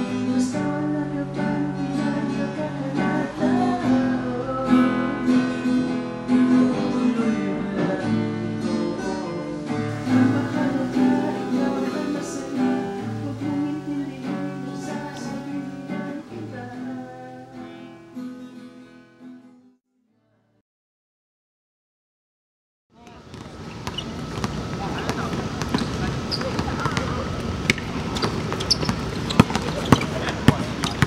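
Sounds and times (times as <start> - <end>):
acoustic guitar strumming: 0.0 - 19.8.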